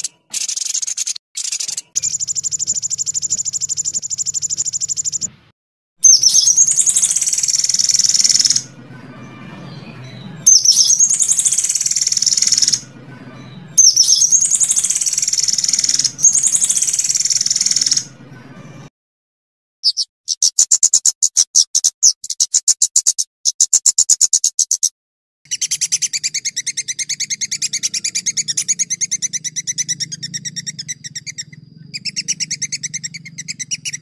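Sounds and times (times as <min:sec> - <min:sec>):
high bird trill: 0:00.0 - 0:05.4, 0:06.0 - 0:18.9, 0:19.8 - 0:24.9, 0:25.5 - 0:34.0
warbling bird phrase: 0:06.0 - 0:18.9, 0:25.5 - 0:34.0.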